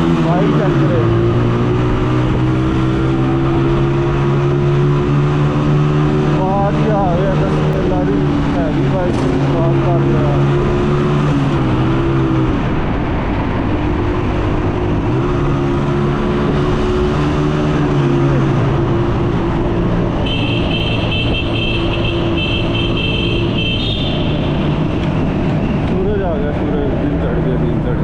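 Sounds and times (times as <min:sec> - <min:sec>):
motorcycle engine revving: 0:00.0 - 0:28.0
wind and road noise: 0:00.0 - 0:28.0.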